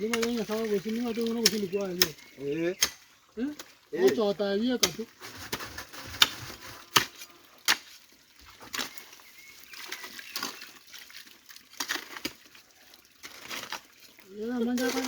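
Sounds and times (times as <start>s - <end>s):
faint water sounds: 0.0s - 15.0s
sharp knocks and scrapes: 4.8s - 9.1s.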